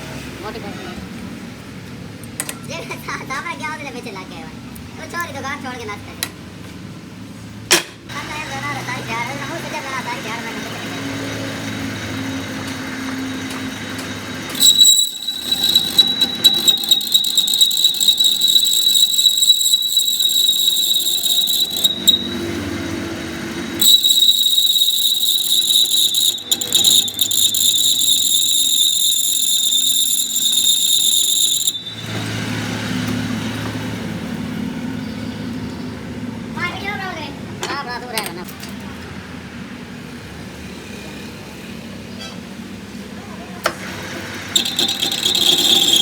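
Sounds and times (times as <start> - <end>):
power tool whining on metal: 8.2 - 34.3, 43.7 - 46.0.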